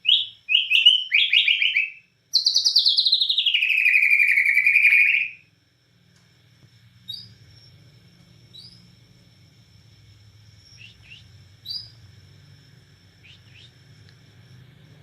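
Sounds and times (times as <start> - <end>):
bird singing whistled phrase: 0.0 - 5.4
steady low hum: 5.3 - 15.0.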